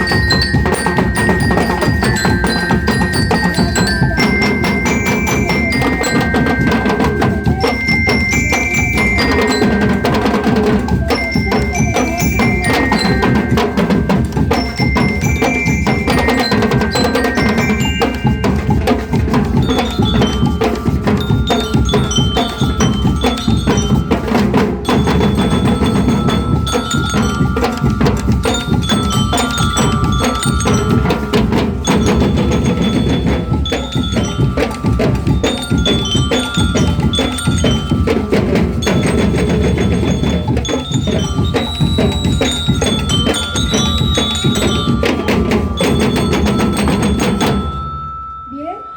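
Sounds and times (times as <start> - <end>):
steady drumming: 0.0 - 48.8
bell lyre melody: 0.0 - 48.9.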